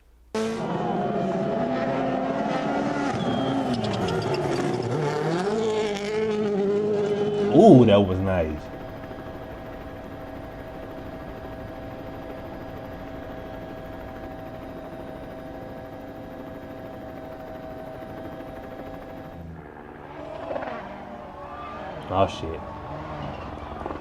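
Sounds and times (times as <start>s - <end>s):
steady mechanical drone: 0.4s - 24.0s.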